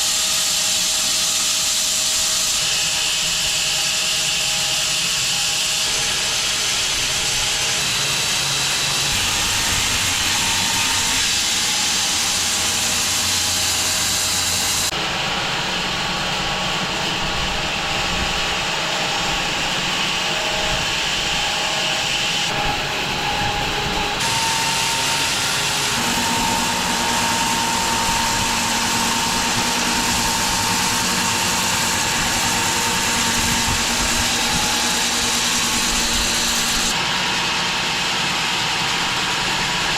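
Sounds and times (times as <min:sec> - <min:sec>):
bandsaw mill cutting log: 0:00.0 - 0:39.9.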